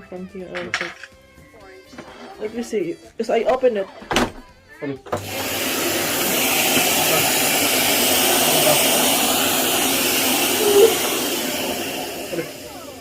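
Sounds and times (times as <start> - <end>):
vacuum cleaner running: 5.1 - 13.0.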